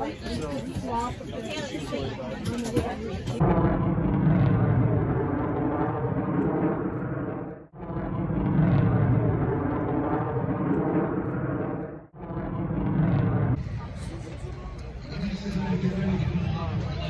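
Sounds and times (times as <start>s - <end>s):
aircraft engine drone: 3.4s - 17.0s.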